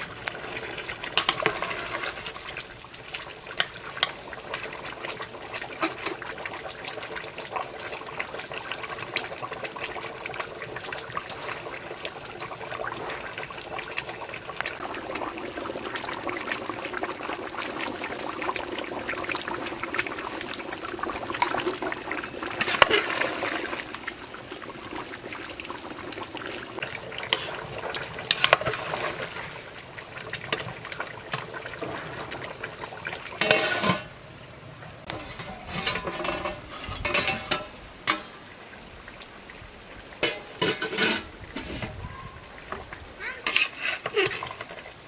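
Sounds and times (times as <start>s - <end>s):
liquid being poured: 0.0s - 34.2s
metal utensils clinking on pot: 1.1s - 2.4s, 3.6s - 4.2s, 33.4s - 34.1s, 35.1s - 38.3s, 40.2s - 42.0s, 43.4s - 44.8s.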